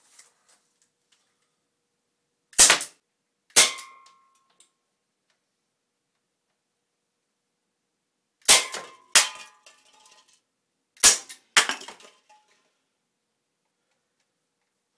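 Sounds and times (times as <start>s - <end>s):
air pistol shots: 2.6s - 3.0s.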